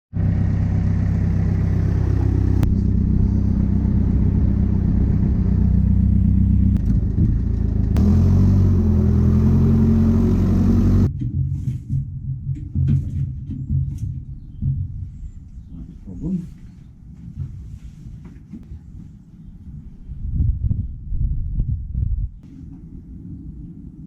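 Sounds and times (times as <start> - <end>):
machinery humming: 0.2 - 11.1.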